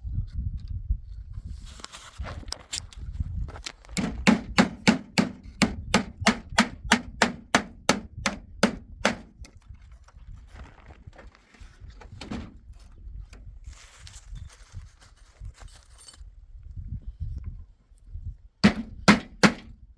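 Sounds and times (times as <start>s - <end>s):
handling noises: 1.8s - 16.3s
hammer blows on wood: 4.0s - 9.5s, 18.6s - 19.7s.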